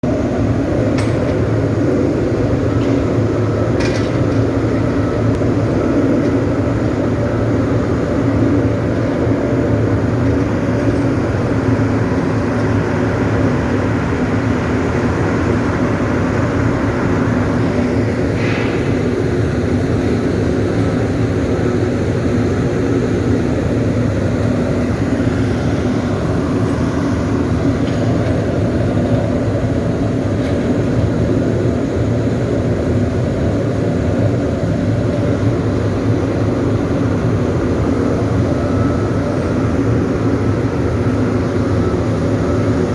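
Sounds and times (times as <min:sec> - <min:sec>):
furnace low rumbling: 0:00.0 - 0:42.9.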